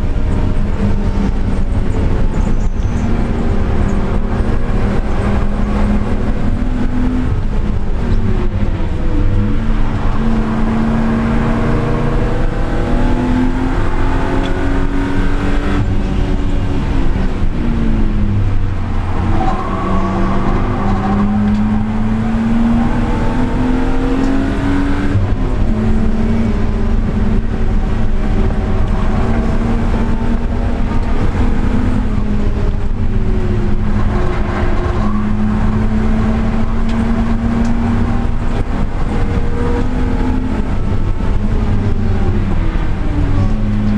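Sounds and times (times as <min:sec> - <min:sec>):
car engine accelerating hard: 0:00.0 - 0:43.9.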